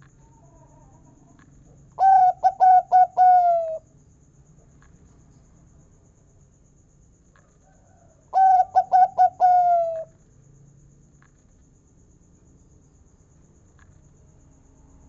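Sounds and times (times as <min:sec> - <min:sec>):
dove cooing song: 0:02.0 - 0:03.8, 0:07.9 - 0:10.1.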